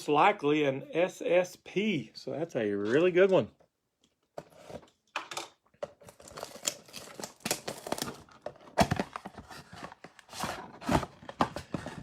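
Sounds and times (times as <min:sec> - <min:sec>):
wrapper crinkling and tearing: 0:06.0 - 0:09.4.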